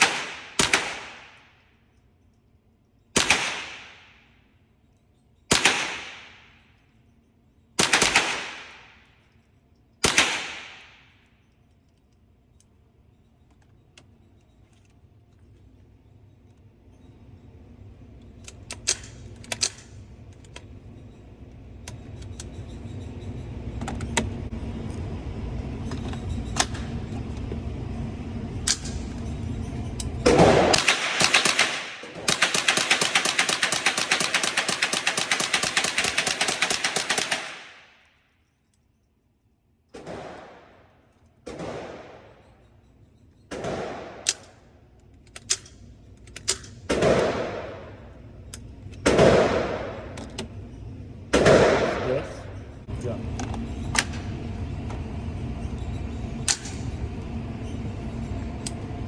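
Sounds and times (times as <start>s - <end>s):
gunshots: 0.0s - 1.4s, 3.2s - 4.1s, 5.5s - 6.5s, 7.8s - 8.9s, 10.0s - 11.0s, 30.3s - 37.9s, 40.0s - 40.8s, 41.5s - 42.5s, 43.5s - 44.5s, 46.9s - 48.1s, 49.0s - 50.2s, 51.3s - 52.5s
steady low rumble: 23.3s - 36.4s, 43.5s - 59.0s
rapid gunfire rattling: 30.3s - 37.9s.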